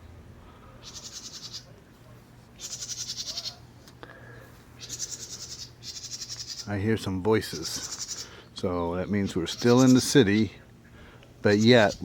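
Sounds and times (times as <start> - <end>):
wren buzzy chattering call: 0.8 - 1.7, 2.6 - 3.7, 4.8 - 8.4, 9.0 - 10.5, 11.4 - 12.0.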